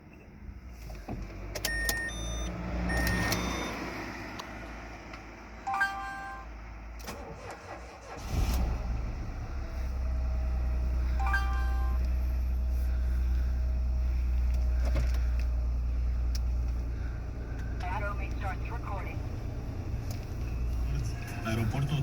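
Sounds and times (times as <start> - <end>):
dashboard warning chimes: 1.6 - 4.0, 5.6 - 6.5, 11.1 - 12.1
car engine idling: 4.4 - 22.0.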